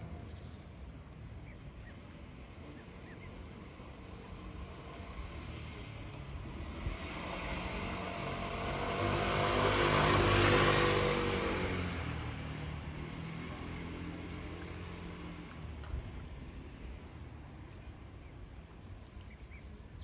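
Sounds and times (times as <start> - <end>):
engine passing by: 2.2 - 17.1.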